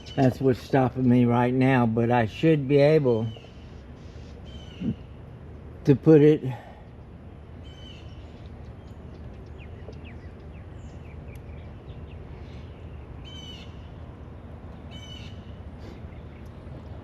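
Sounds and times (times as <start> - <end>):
birds chirping: 0.0 - 17.0
low background rumble: 0.0 - 17.0
harsh bird calls: 3.1 - 5.5, 7.5 - 17.0.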